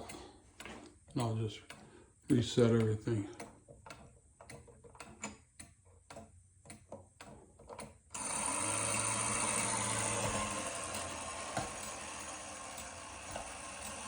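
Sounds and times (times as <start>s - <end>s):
clock ticking: 0.0s - 14.0s
low mechanical hum: 8.1s - 14.0s
mechanism whirring hiss: 8.2s - 14.0s.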